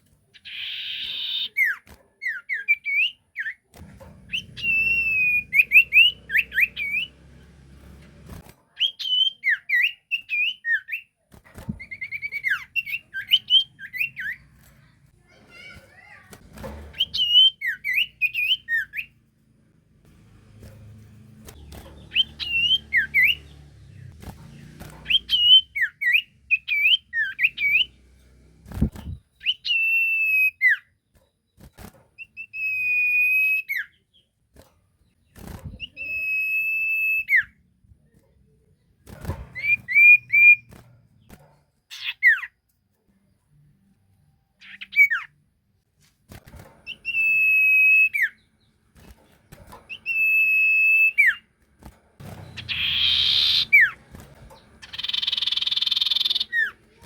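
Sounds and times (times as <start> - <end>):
bird whistling: 4.3 - 7.1, 22.1 - 23.5, 25.0 - 27.9, 39.6 - 40.7, 46.9 - 48.4, 49.9 - 51.4, 52.4 - 54.0, 54.8 - 56.7.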